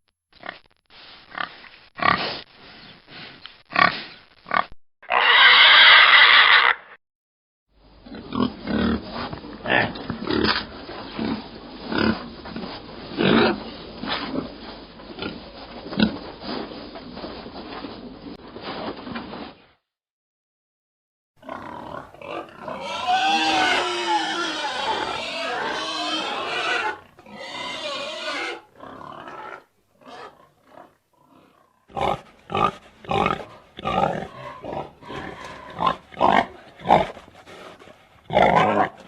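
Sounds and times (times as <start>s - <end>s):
loud pig squeal: 5.0s - 7.0s, 21.4s - 37.0s, 38.3s - 39.0s
pigs grunting: 8.0s - 16.5s, 21.4s - 39.0s.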